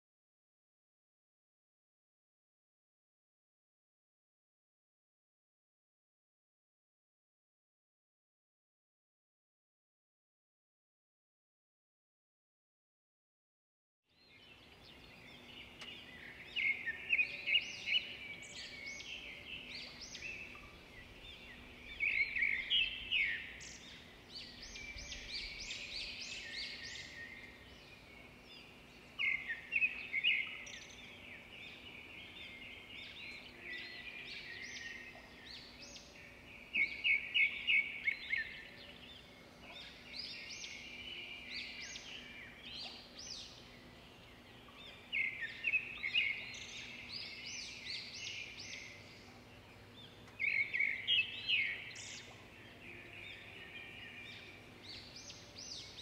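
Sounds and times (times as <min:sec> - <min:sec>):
birds chirping and trilling: 0:14.1 - 0:56.0.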